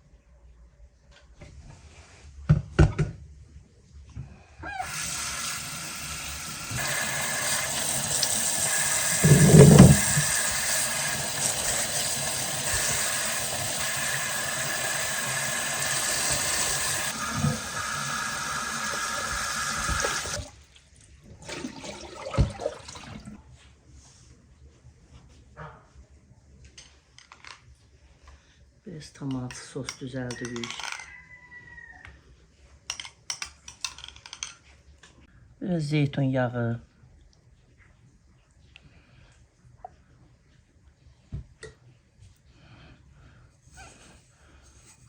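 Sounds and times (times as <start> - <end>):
water running: 4.7 - 23.4
dull thump: 9.2 - 10.3
knocks: 9.2 - 10.3.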